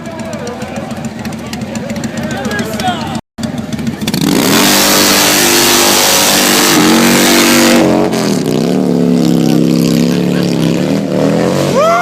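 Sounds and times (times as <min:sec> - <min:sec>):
motorcycle engine at full throttle: 0:00.0 - 0:12.0.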